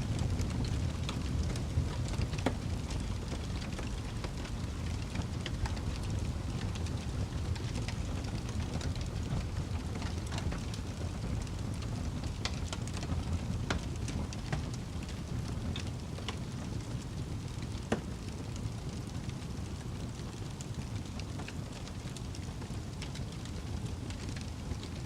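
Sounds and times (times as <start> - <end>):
low rumble of flames: 0.0 - 25.0
wood crackles and pops: 0.0 - 25.0.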